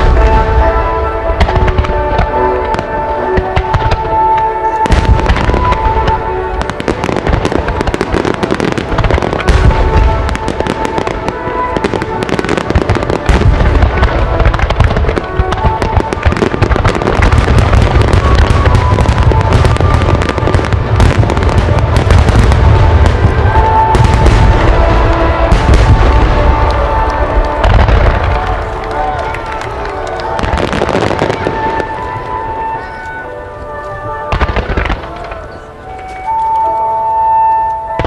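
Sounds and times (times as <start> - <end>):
fireworks crackling and booming: 0.0 - 38.0
theme music: 0.0 - 38.0.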